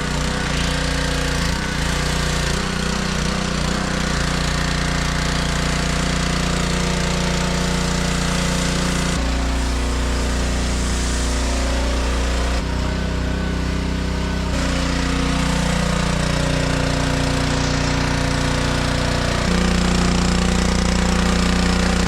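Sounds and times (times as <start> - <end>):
pressure washer engine running: 0.0 - 22.0
hiss of spray: 9.3 - 12.6.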